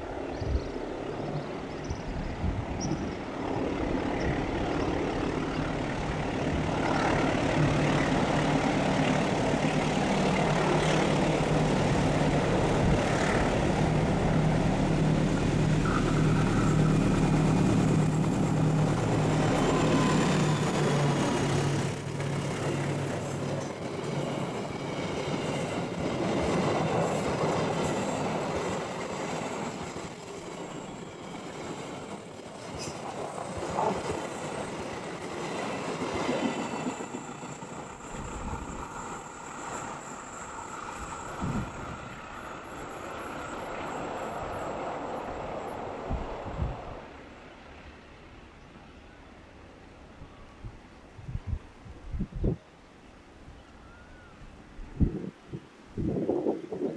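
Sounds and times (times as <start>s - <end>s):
locomotive engine drone: 0.0s - 51.0s
wheels rushing on rail: 0.0s - 51.4s
faint wheel squeal: 36.6s - 44.7s.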